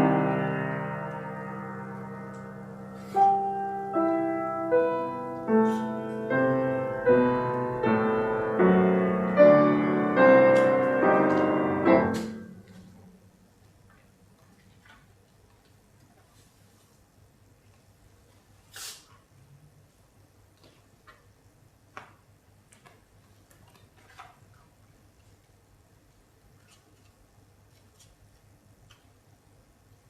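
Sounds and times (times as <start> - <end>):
piano chords: 0.0 - 13.4.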